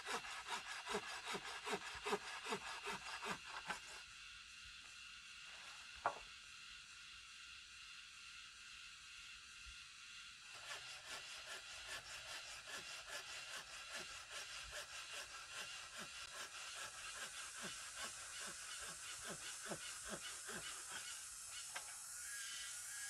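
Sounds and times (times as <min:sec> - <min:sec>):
hand saw cutting wood: 0:00.0 - 0:04.0, 0:10.4 - 0:21.2.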